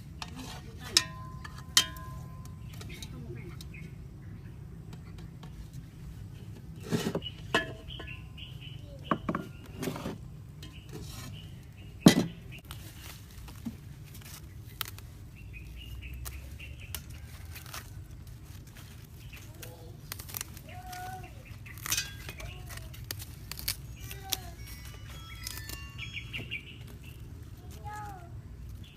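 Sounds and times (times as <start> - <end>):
dishes and utensils clinking: 6.9 - 8.2.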